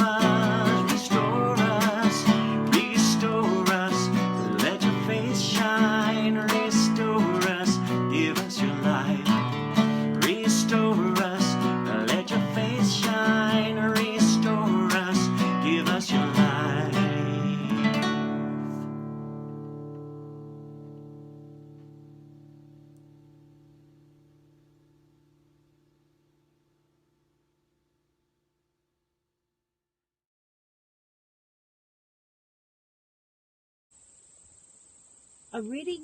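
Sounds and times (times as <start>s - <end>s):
acoustic guitar strumming: 0.0s - 27.0s.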